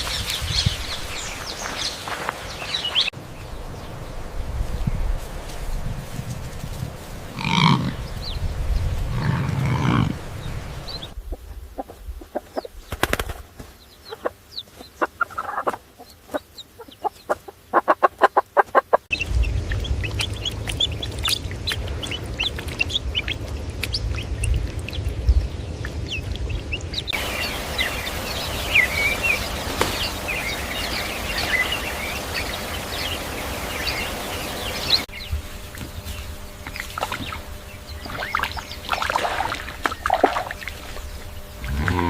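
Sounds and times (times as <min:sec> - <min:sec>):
chickens clucking: 0:10.9 - 0:13.3, 0:13.9 - 0:25.1
chicks peeping: 0:10.9 - 0:39.4
low rumble: 0:19.1 - 0:42.0.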